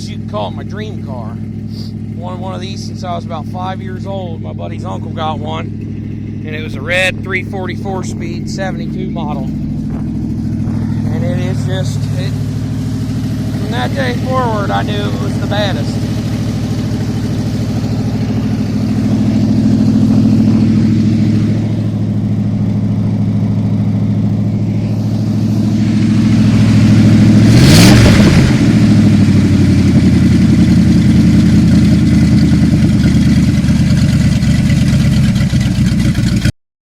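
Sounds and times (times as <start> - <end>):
car engine idling rough: 0.0 - 36.5.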